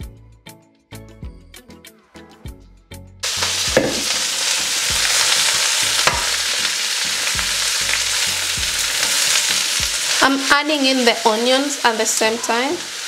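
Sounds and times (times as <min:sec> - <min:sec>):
vegetables sizzling in hot oil: 0:03.2 - 0:13.0.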